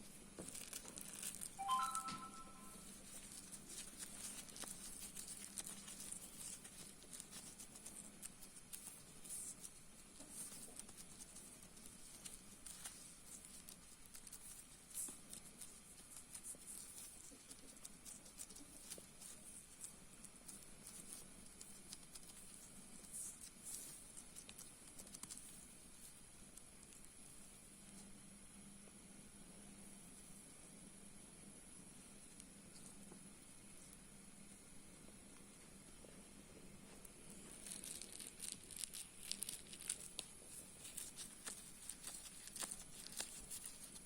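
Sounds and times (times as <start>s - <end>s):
thin high whine: 1.6s - 2.9s.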